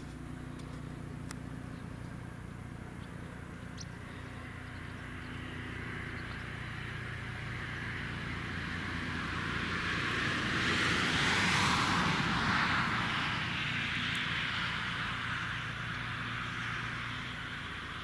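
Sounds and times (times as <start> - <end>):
low steady hum: 0.0 - 10.2
helicopter turbine and rotor: 0.0 - 18.0.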